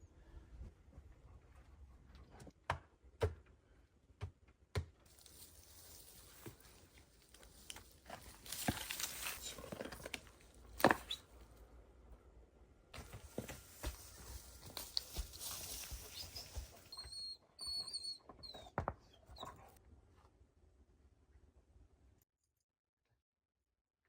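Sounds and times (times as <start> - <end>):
rustling scraping noise: 5.1 - 11.4, 13.0 - 17.0.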